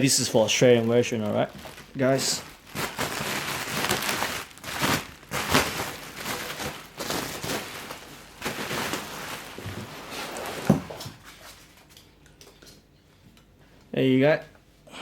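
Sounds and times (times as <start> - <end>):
packaging wrap rustling and crinkling: 0.0 - 11.8.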